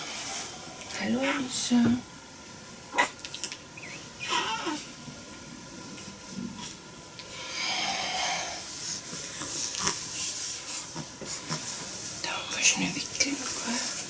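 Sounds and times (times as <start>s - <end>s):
bedding rustling: 8.5s - 14.0s.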